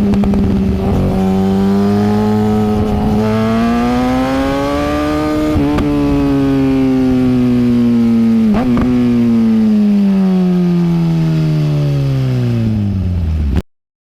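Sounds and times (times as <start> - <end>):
motorcycle engine revs falling: 0.0 - 9.8.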